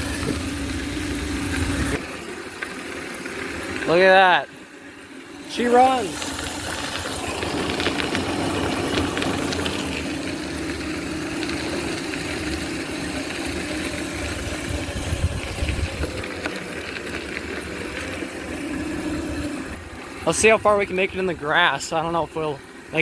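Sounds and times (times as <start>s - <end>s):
electric motor humming: 0.0s - 23.0s.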